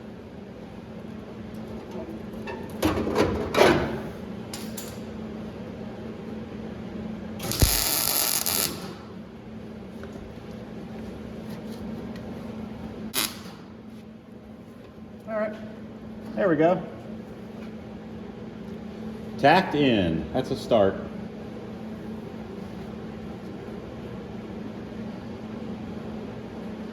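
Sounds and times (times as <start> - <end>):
crackling weld bursts: 7.4 - 9.2, 13.1 - 13.7.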